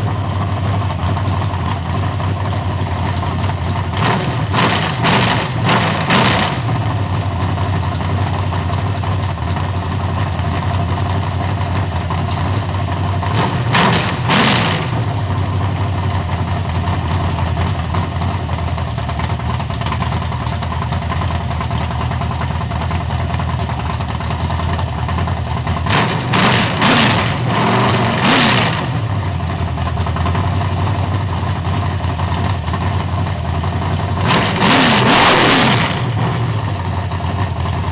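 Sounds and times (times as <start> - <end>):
car engine idling: 0.0 - 37.9.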